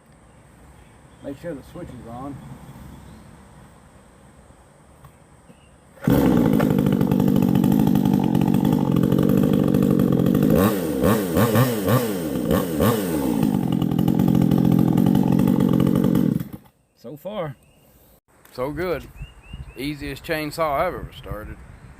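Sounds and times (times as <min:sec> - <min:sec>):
chainsaw running and revving: 0:06.0 - 0:16.7.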